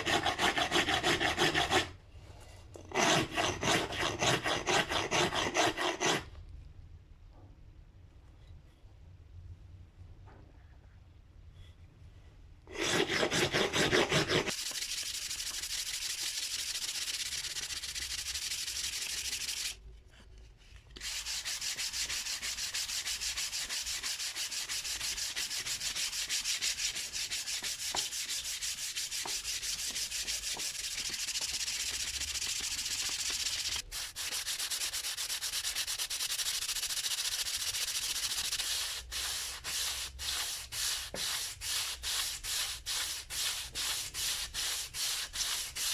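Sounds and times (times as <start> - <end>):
hand sanding strokes: 0.0 - 1.9, 3.0 - 6.2, 12.7 - 19.8, 21.0 - 45.9.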